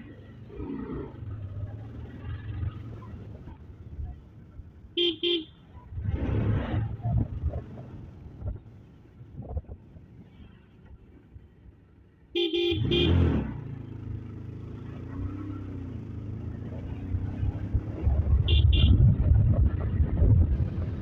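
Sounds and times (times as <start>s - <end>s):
road traffic rumble: 0.0s - 21.0s
vehicle horn honking: 5.0s - 5.5s, 12.4s - 13.3s, 18.4s - 19.0s.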